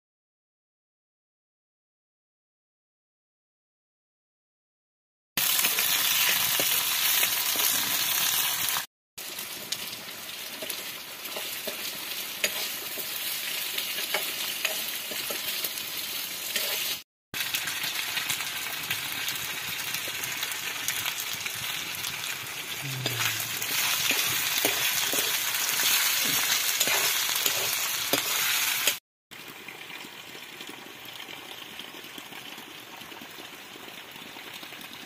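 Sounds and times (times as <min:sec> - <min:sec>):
vegetables sizzling in hot oil: 0:05.4 - 0:29.0
stirring clicks in wok: 0:14.0 - 0:15.5.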